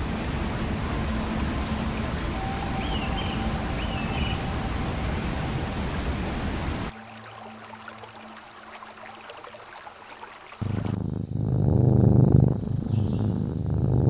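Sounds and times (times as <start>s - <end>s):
low hum: 0.0s - 7.0s
steady rushing noise: 0.0s - 7.0s.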